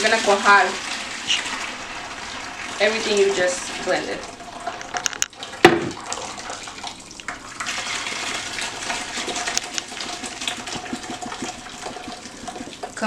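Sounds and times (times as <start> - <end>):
sauce pouring through a strainer: 0.0 - 13.0.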